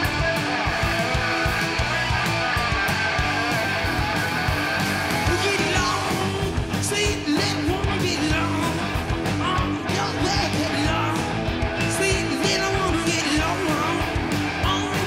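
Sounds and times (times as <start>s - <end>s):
rock song with guitar and drums: 0.0s - 15.0s
person singing: 5.2s - 15.0s.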